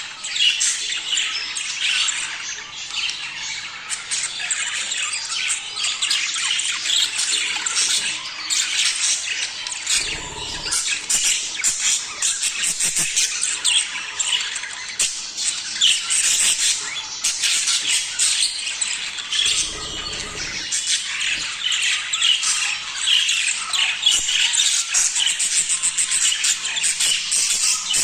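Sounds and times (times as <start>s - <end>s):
budgerigars chattering: 9.8s - 28.0s.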